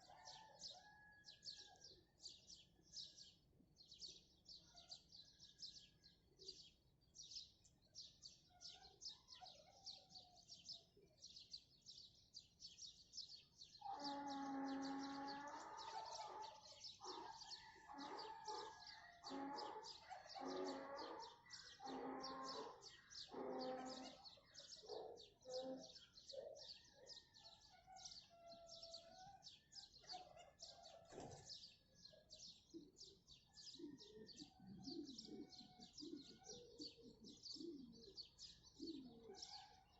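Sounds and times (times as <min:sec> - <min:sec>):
small birds chirping: 0:00.0 - 0:39.9
farm animal calling: 0:13.8 - 0:16.6, 0:17.2 - 0:26.2.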